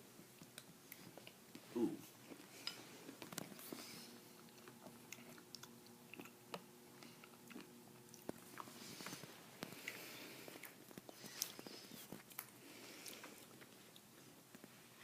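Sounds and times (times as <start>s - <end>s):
faint steady hum: 0.0s - 15.0s
person eating clicks and smacks: 4.4s - 14.1s.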